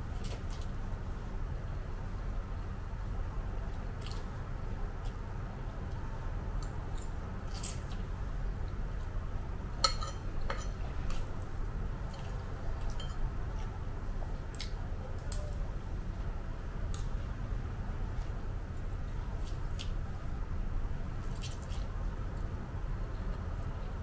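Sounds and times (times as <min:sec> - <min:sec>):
cutlery clinking on ceramic bowl: 0:09.8 - 0:10.8.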